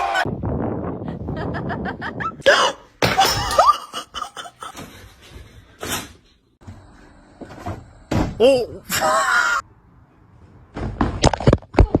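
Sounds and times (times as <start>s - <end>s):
person laughing: 3.2s - 4.8s.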